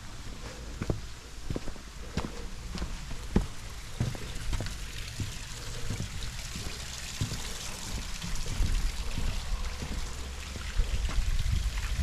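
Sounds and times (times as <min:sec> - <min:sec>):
stream trickling and splashing: 0:03.0 - 0:12.0.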